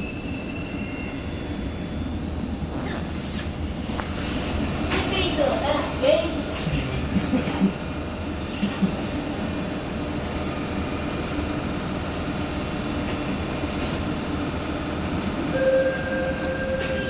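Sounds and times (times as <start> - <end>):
electric train pulling away: 15.0 - 17.0.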